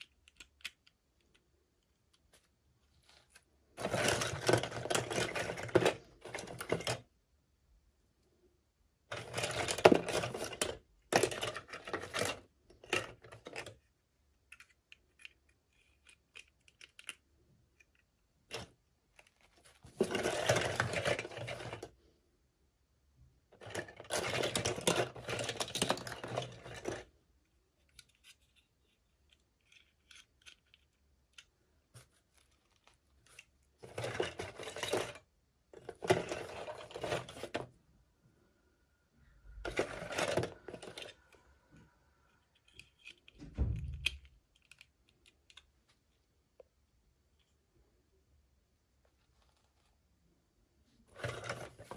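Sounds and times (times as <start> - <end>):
faint small clicks and taps: 14.4 - 19.7.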